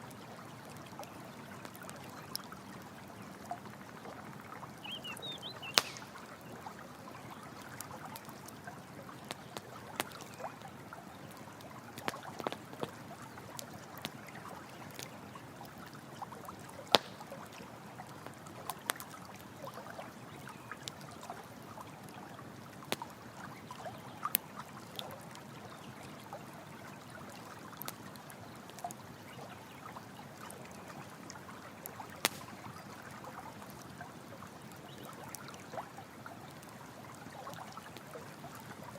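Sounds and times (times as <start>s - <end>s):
water trickling: 0.0s - 38.9s
campfire crackling and popping: 0.3s - 38.9s.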